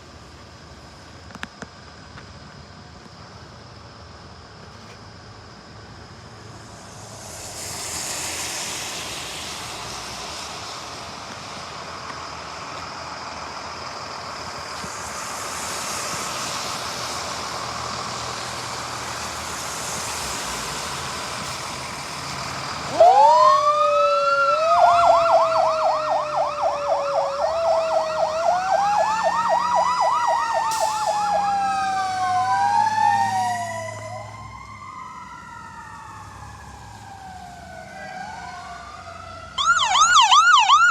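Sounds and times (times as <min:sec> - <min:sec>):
steady rushing noise: 0:05.7 - 0:12.5
emergency vehicle sirens: 0:06.4 - 0:40.9.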